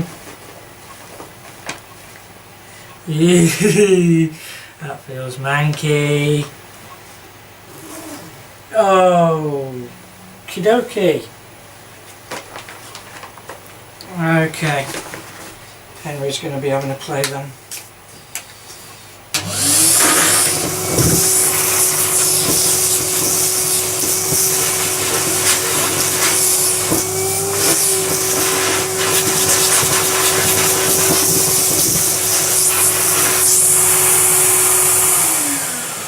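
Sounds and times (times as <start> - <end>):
vacuum cleaner motor whine: 19.3 - 36.0.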